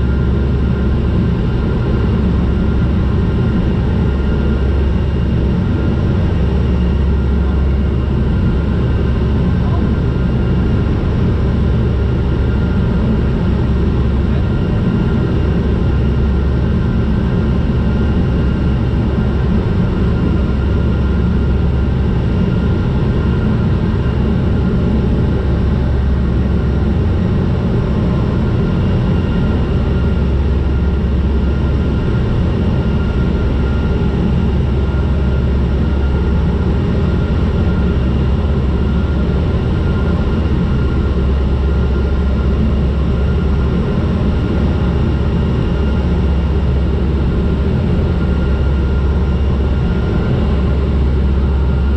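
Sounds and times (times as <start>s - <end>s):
aircraft propellers droning: 0.0s - 51.9s
faint steady whines: 0.0s - 51.9s.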